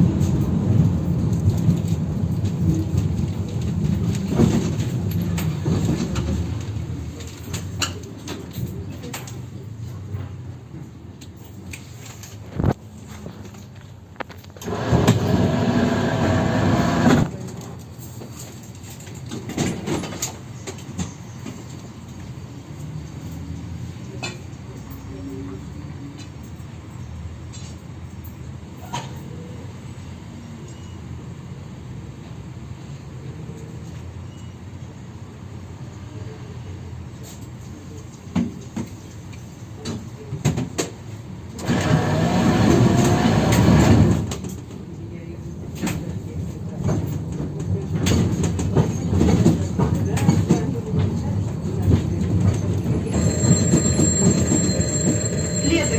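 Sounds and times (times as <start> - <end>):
tram running rumble: 0.0 - 55.9
loud humming noise: 14.6 - 17.3
tram wheels knocking over rail joints: 46.8 - 55.9.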